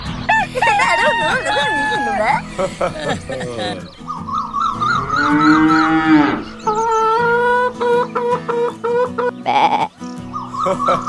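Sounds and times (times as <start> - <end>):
cow mooing: 1.2 - 7.7.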